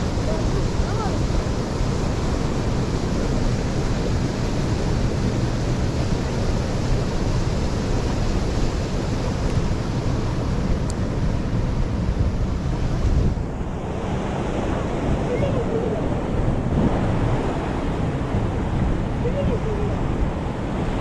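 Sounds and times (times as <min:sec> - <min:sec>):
stream water rushing: 0:00.0 - 0:21.0.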